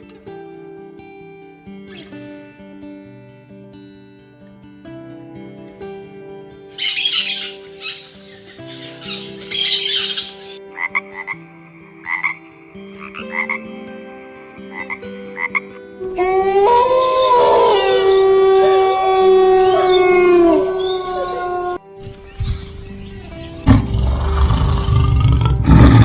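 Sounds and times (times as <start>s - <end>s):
animal calling: 6.8s - 11.4s, 16.2s - 26.0s.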